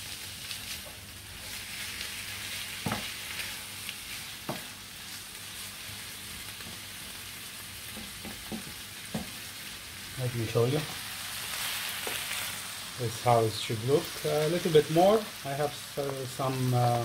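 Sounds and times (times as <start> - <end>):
chicken sizzling in a frying pan: 0.0 - 17.0
wooden spoon knocking on pan: 2.8 - 3.1, 4.4 - 4.7, 7.9 - 9.4.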